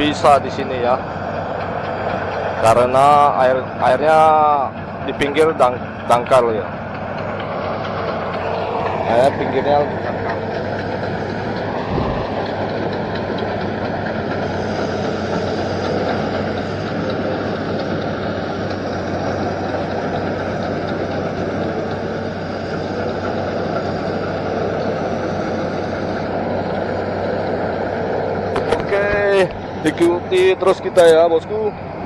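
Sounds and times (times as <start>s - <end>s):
mechanical rattle: 0.0s - 31.7s
excavator diesel engine running: 0.0s - 32.0s.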